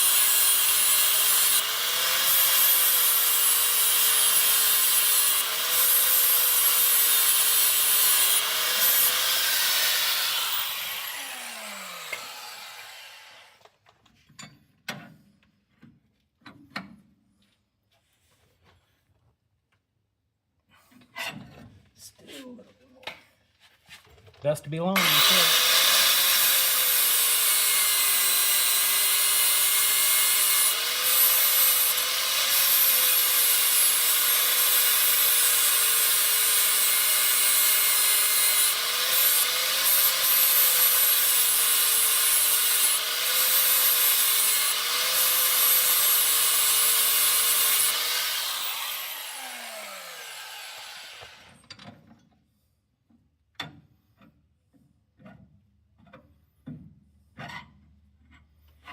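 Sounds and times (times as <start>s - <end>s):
electric grinder grinding metal: 0.0s - 13.6s, 25.0s - 51.6s.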